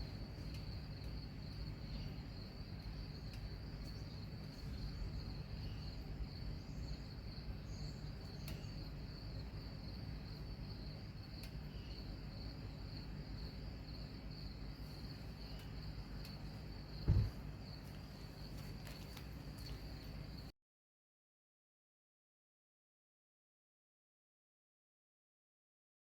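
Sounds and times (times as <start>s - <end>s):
crickets chirping: 0.0s - 20.5s
faint clicks: 8.4s - 8.7s.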